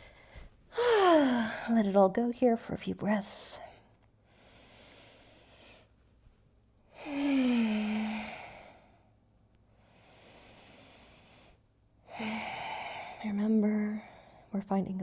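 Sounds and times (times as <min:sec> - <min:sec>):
woman inhaling deeply: 0:07.0 - 0:09.0.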